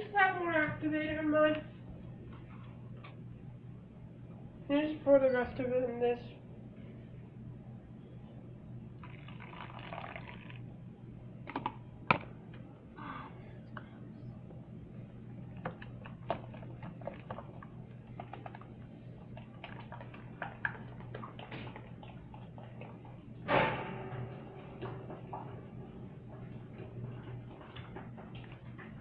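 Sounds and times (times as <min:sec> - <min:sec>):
liquid pouring: 0:09.0 - 0:10.7, 0:15.7 - 0:23.0
slime being mixed by hand: 0:15.5 - 0:23.4.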